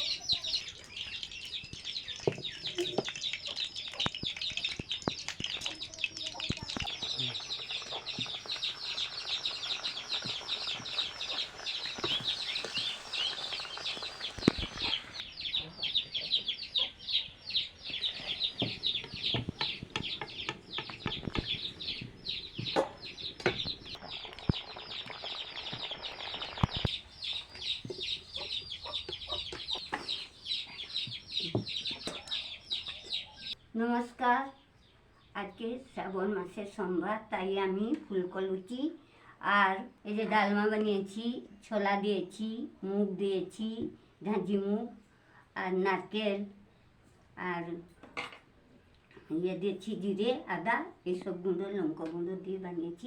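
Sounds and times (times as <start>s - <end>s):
chickens chirping and peeping: 0.0s - 33.6s.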